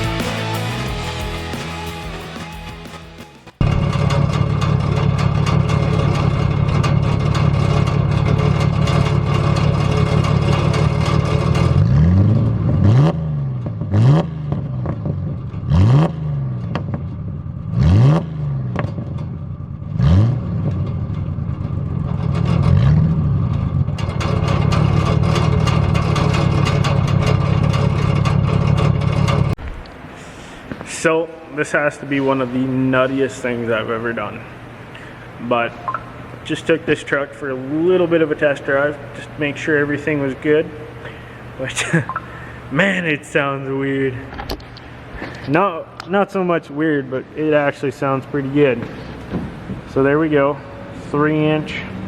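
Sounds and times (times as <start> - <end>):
pickup engine revving: 0.0 - 29.6, 47.2 - 52.0
engine droning through exhaust: 3.6 - 52.0.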